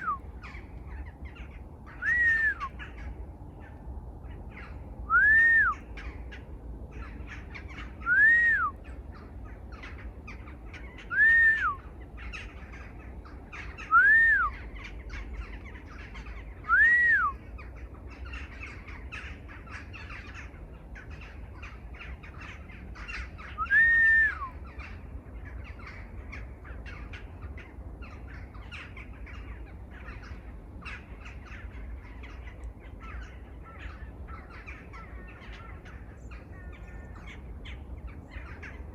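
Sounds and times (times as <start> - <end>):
bird call rising and falling: 0.0 - 6.4, 7.0 - 19.2, 22.3 - 25.0.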